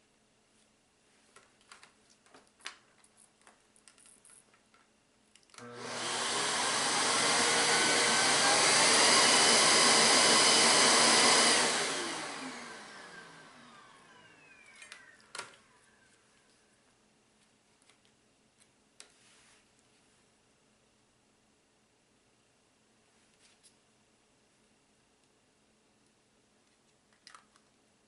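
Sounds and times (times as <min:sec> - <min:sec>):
vacuum cleaner motor whine: 0:05.6 - 0:16.3.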